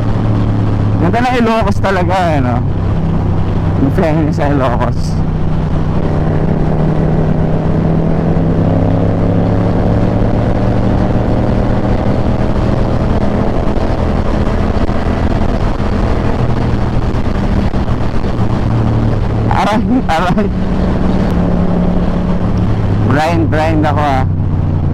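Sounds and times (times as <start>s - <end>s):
motorcycle engine cruising: 0.0s - 24.9s
wind noise: 0.0s - 24.9s.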